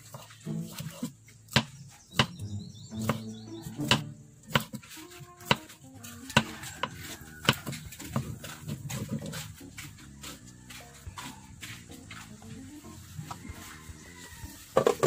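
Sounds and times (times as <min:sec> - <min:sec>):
background music: 0:00.4 - 0:15.0
knife knocking on wooden board: 0:01.6 - 0:04.8.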